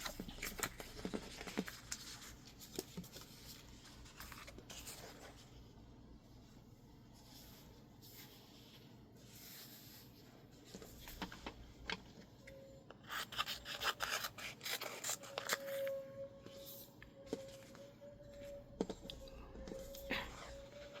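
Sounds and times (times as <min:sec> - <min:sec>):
tape rubbing on paper: 0:13.0 - 0:16.8.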